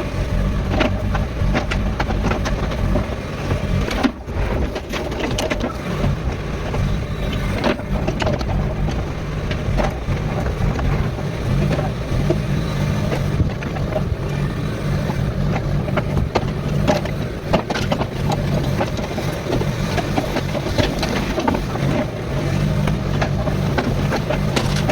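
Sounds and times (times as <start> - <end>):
excavator diesel engine running: 0.0 - 24.9
bucket knocking and scraping soil: 15.2 - 24.9.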